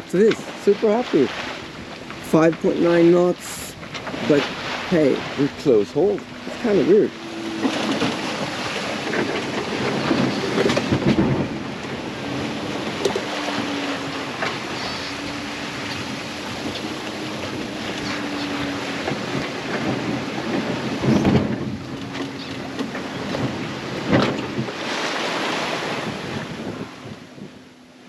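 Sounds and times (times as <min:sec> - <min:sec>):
wind buffeting microphone: 0:00.0 - 0:27.8
water rushing along hull: 0:00.0 - 0:28.0
knocks and splashes: 0:00.1 - 0:27.2.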